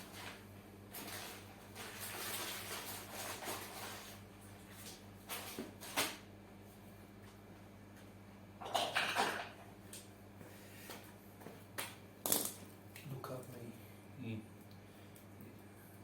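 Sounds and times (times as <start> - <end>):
steady low hum: 9.6 - 16.0.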